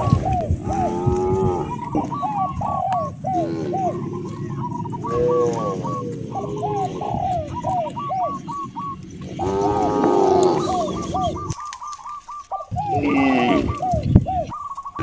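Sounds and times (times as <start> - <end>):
cow mooing: 0.0 - 7.0, 9.4 - 11.5.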